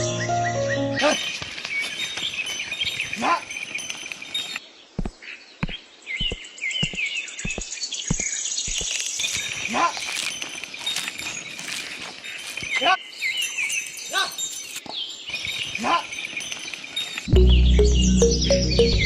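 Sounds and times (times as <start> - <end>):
outdoor ambience: 0.0 - 19.0
small birds chirping: 0.0 - 19.0
sharp knocks: 5.0 - 9.0.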